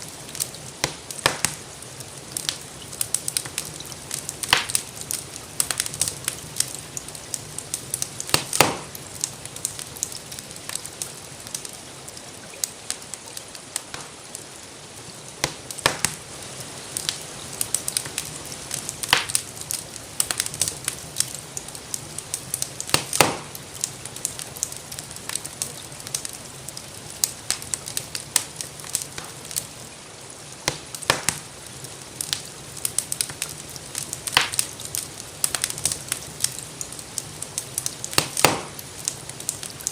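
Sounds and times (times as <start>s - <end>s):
rainfall hiss: 0.0s - 39.9s
wood fire crackling: 0.0s - 39.9s.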